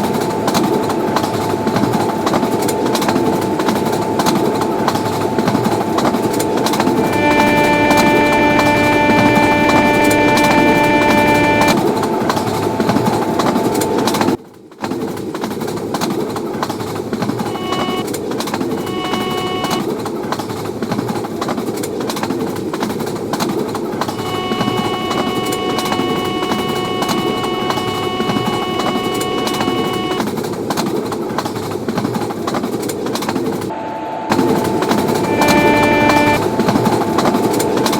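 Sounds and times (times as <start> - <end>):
steady stack of tones: 0.0 - 14.4, 17.4 - 18.1, 18.7 - 19.8, 24.1 - 30.2, 33.9 - 37.9
train wheels roaring on rails: 0.0 - 37.9.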